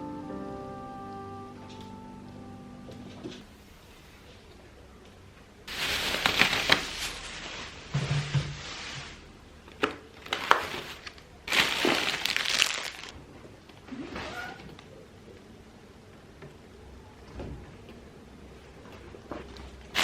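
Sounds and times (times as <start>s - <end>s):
plastic bags crinkling: 5.7s - 8.0s, 9.8s - 13.2s.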